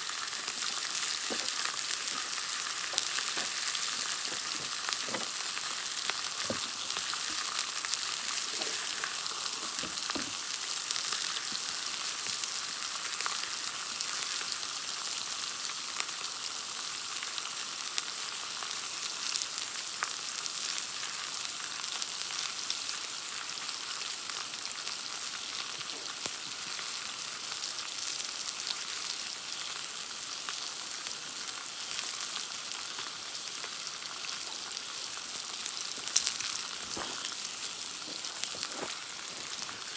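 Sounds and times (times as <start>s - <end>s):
steak sizzling over campfire: 0.0s - 39.9s.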